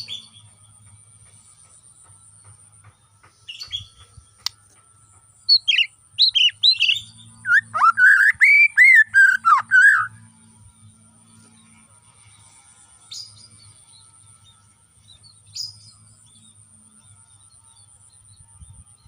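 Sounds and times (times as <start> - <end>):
faint high whine: 0.0 - 19.0
low hum: 0.0 - 19.0
songbird whistling: 5.5 - 10.2.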